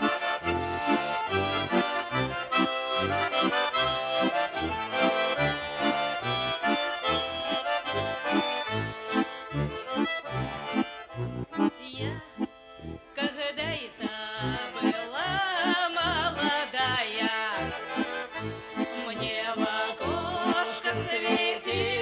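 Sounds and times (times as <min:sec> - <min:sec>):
accordion folk tune: 0:00.0 - 0:22.0.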